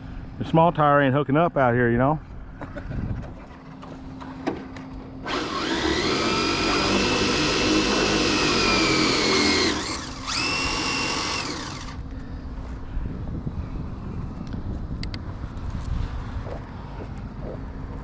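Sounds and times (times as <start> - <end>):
electric motor whining: 5.2 - 12.0.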